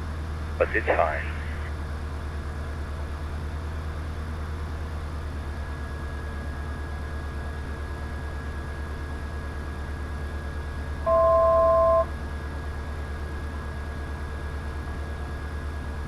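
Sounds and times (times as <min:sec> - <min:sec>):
light aircraft engine droning: 0:00.0 - 0:16.0
faint steady whine: 0:00.4 - 0:02.1, 0:11.0 - 0:12.1.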